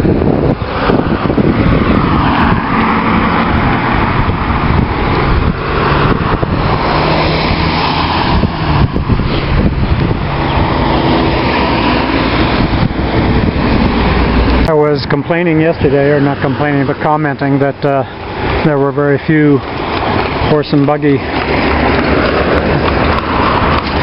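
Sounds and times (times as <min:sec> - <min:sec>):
car engine hum: 0:00.0 - 0:24.0
tyre noise: 0:19.5 - 0:24.0.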